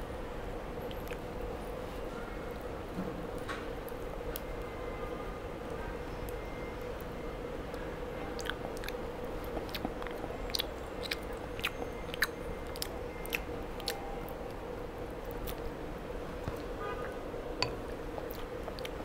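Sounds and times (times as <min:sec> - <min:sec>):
child chewing and biting: 0:08.3 - 0:14.5, 0:18.1 - 0:19.0.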